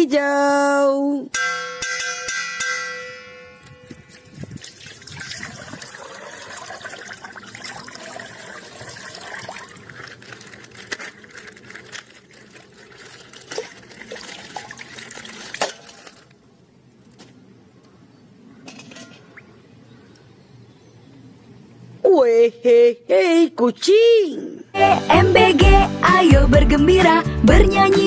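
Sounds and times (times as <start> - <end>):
liquid trickling and splashing: 4.5 - 16.4.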